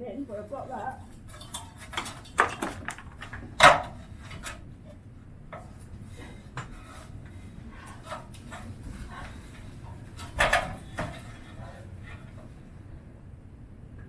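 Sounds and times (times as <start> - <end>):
wooden objects knocking and scraping: 1.4 - 4.6.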